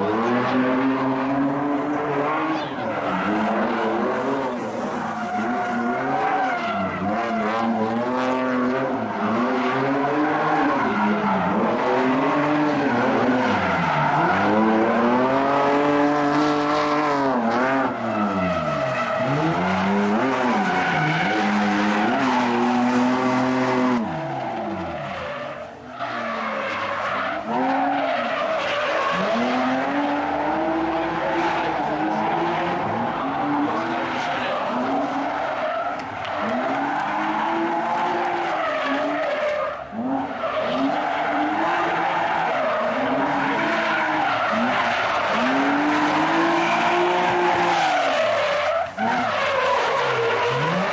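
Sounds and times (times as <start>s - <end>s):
car engine revving: 0.0s - 50.9s
tyres squealing: 1.5s - 7.4s.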